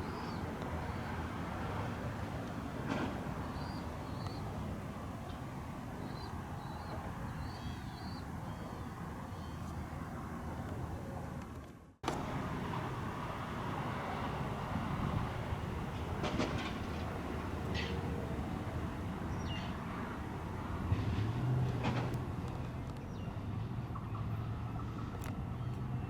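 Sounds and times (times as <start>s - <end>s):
traffic rumble: 0.0s - 26.0s
small bird chirping: 3.5s - 4.4s, 6.0s - 9.9s.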